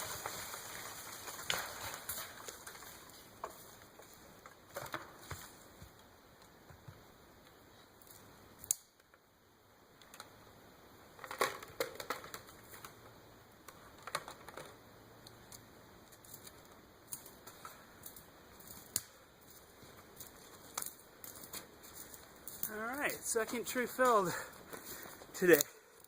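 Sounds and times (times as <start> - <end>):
twigs snapping and crackling: 0.0 - 5.4, 8.0 - 9.2, 15.2 - 22.9.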